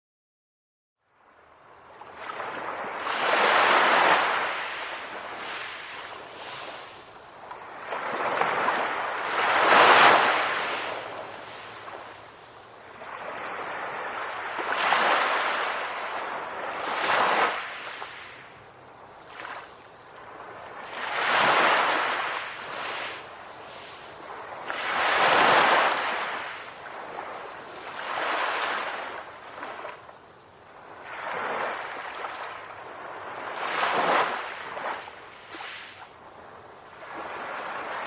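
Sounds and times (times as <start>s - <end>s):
ocean waves breaking: 2.2s - 18.5s, 19.2s - 30.1s, 30.8s - 38.0s.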